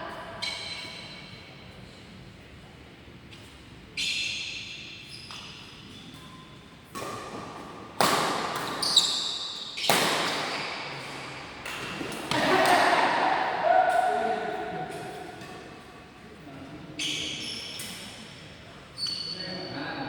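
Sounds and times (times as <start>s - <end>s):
court shoes squeaking: 0.1s - 1.4s, 3.3s - 12.8s, 17.0s - 20.0s
rackets smacking shuttlecock: 6.9s - 9.2s, 9.8s - 13.2s.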